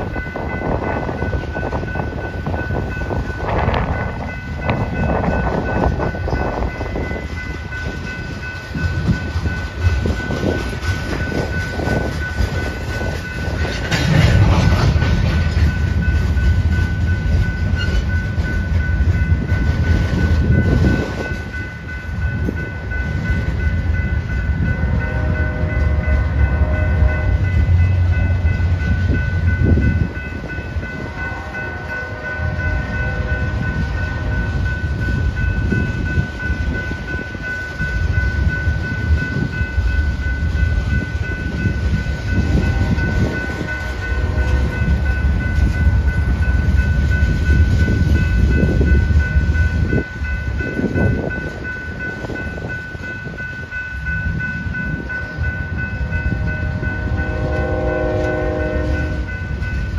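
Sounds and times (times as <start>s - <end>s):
train wheels rumbling on rail: 0.0s - 59.9s
faint train horn chord: 24.6s - 28.5s, 30.9s - 34.7s, 56.0s - 59.6s.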